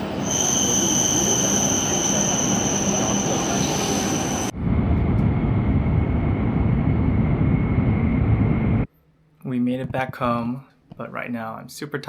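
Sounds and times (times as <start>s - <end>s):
train high-pitched squeal: 0.0s - 4.5s.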